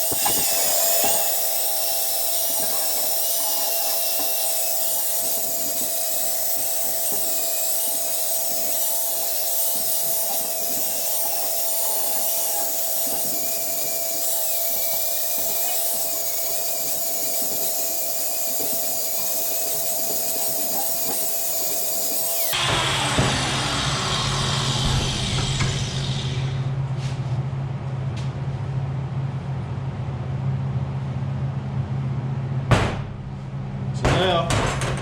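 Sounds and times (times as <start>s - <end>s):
grinding metal scraping: 0.0s - 26.8s
rotary tool whining: 0.0s - 26.8s.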